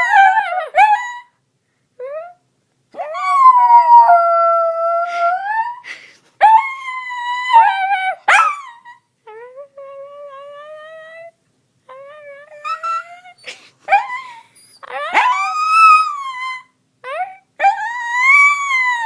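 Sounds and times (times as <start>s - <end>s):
dog howling: 12.4s - 19.0s.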